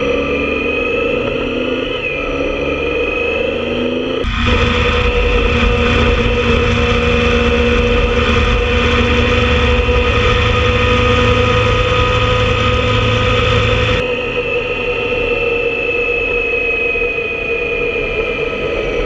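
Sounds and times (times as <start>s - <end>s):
motorcycle engine running: 4.2s - 15.0s.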